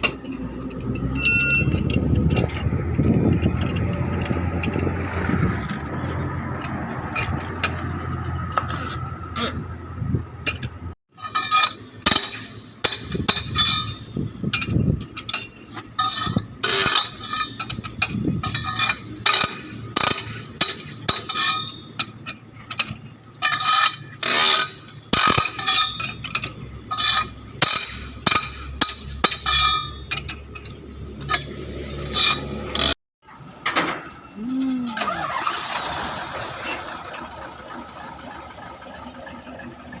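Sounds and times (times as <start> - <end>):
metal tools clinking and knocking: 0.0 - 9.6, 10.4 - 33.0.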